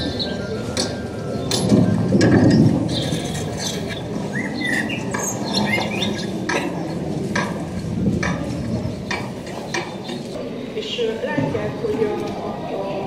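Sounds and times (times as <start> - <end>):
small birds chirping: 0.0 - 7.4, 8.2 - 10.4.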